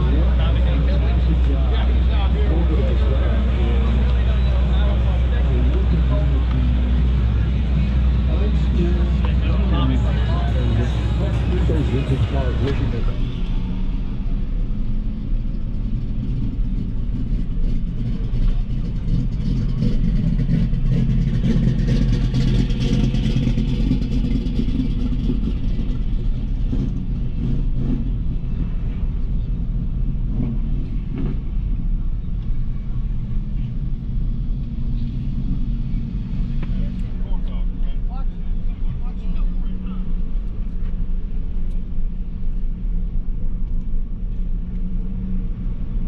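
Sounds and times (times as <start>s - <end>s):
car engine running low: 0.0s - 46.0s
tyre and road noise: 0.0s - 46.0s.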